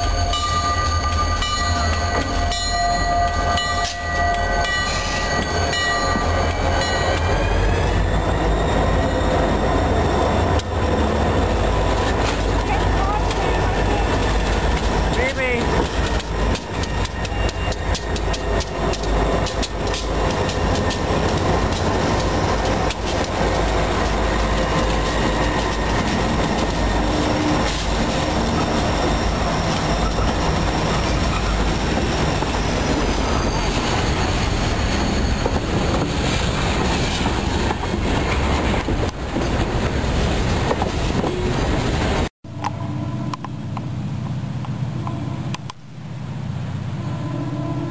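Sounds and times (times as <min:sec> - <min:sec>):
railroad cars rolling past: 0:00.0 - 0:47.9
faint high wheel squeal: 0:04.2 - 0:10.3, 0:28.5 - 0:36.1
wheels clicking over rail joints: 0:11.9 - 0:32.6.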